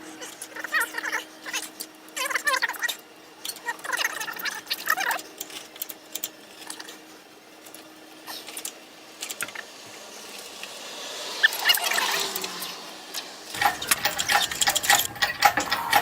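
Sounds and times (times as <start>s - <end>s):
metal parts squeaking: 13.6s - 16.0s
sharp clicks and light knocks: 13.6s - 16.0s.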